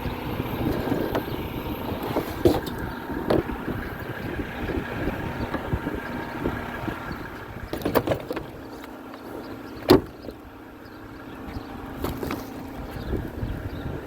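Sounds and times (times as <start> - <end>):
garbage truck engine rumbling: 0.0 - 14.0
metal clanks: 7.6 - 10.4.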